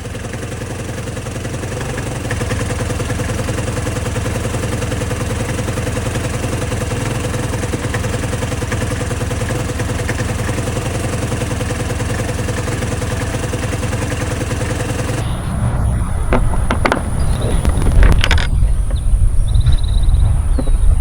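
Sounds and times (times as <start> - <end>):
scooter engine idling: 0.0 - 21.0
low rumble with sharp knocks: 15.1 - 21.0.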